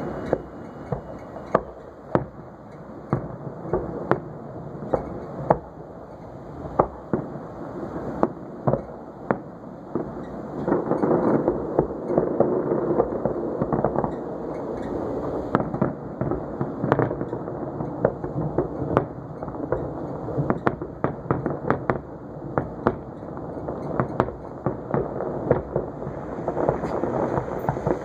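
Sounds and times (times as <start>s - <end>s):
continuous rumble: 0.0s - 28.0s
fireworks bursting: 0.0s - 28.0s
sharp cracking pops: 6.6s - 28.0s.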